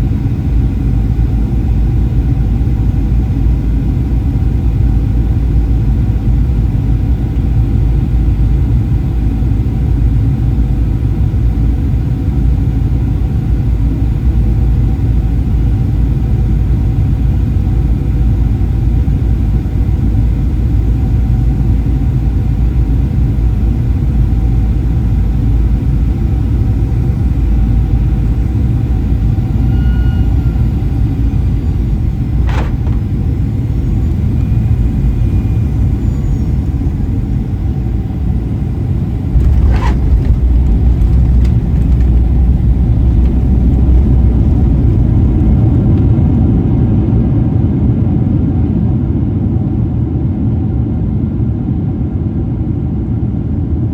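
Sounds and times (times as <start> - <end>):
low rumble of jet engines and airflow: 0.0 - 53.9
constant tones: 29.0 - 46.5.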